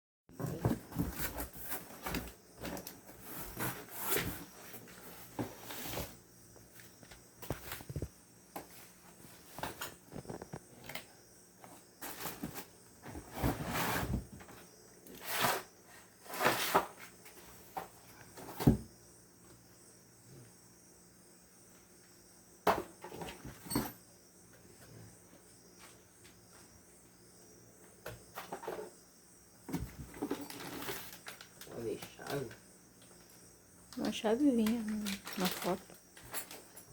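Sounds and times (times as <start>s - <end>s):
rustling and scraping handling noises: 0.3s - 18.6s, 29.7s - 36.9s
crickets chirring: 0.3s - 36.9s.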